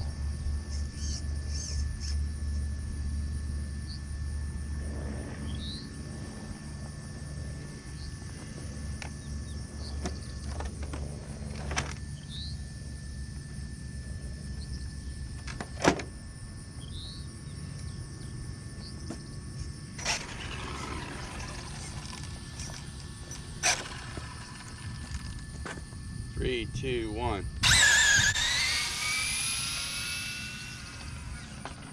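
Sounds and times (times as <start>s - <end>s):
steady low rumble: 2.3s - 15.3s.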